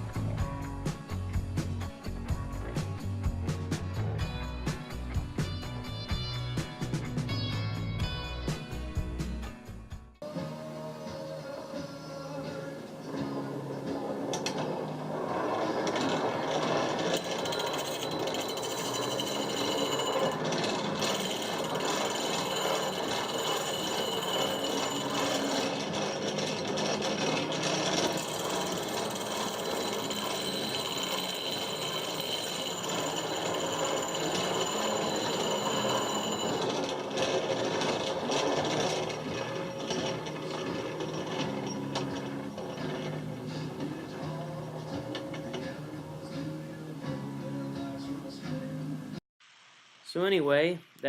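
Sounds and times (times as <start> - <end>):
background music: 0.0 - 49.2
hand-crank grinder rattling: 14.0 - 45.8.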